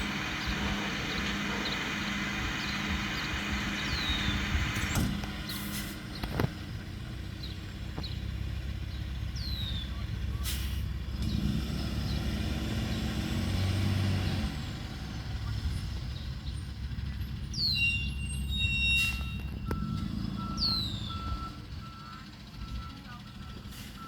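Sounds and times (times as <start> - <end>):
truck engine rumbling: 0.0 - 24.0
reversing alarm beeping: 17.6 - 24.0.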